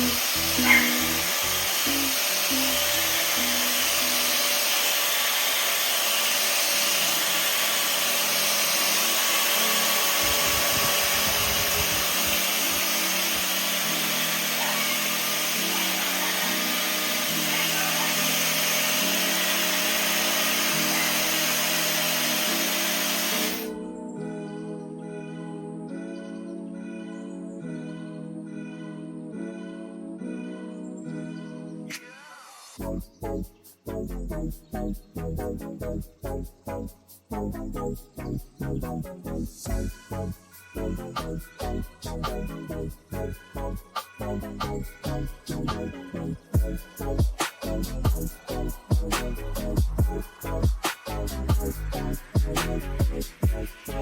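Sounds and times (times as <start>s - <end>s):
hair dryer running: 0.0s - 23.8s, 46.6s - 50.2s.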